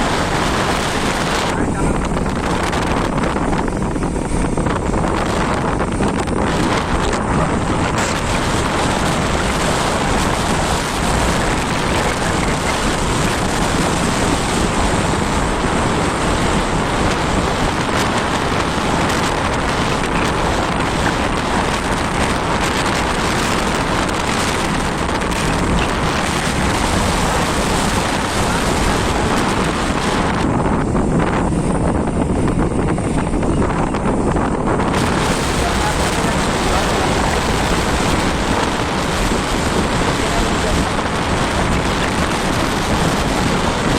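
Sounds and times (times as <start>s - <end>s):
motorcycle noise: 0.0s - 43.9s
wind rushing on microphone: 0.0s - 43.9s.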